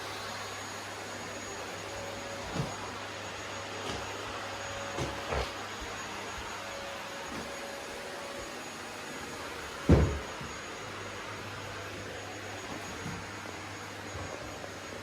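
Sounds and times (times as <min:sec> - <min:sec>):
vacuum cleaner running: 0:00.0 - 0:15.0
dull knocks: 0:09.9 - 0:10.4.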